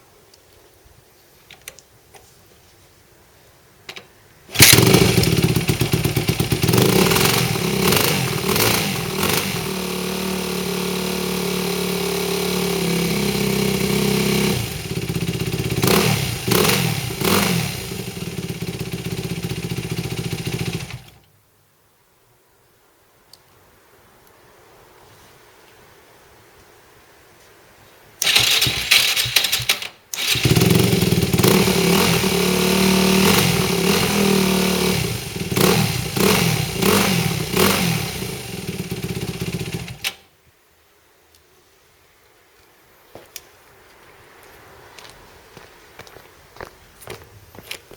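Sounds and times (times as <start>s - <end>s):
motorcycle engine revving and idling: 4.5s - 21.2s, 28.2s - 40.2s.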